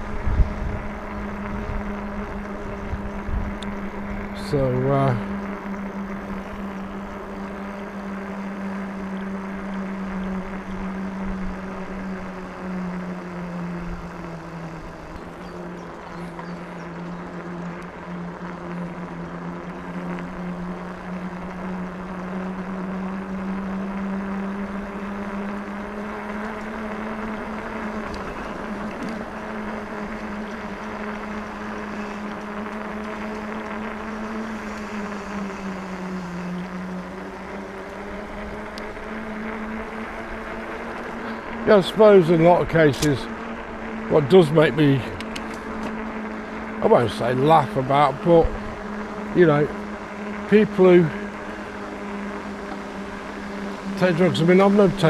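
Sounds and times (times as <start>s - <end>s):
wind noise: 0.0s - 8.2s
electric bike motor whining: 0.0s - 55.0s.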